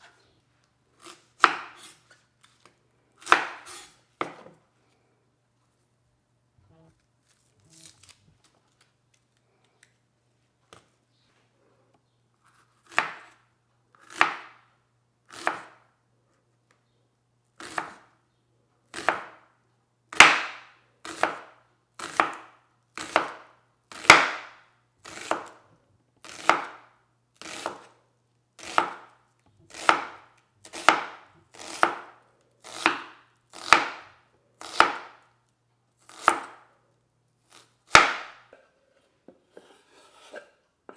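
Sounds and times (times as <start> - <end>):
knife slicing on cutting board: 3.2 - 4.5, 39.5 - 40.9.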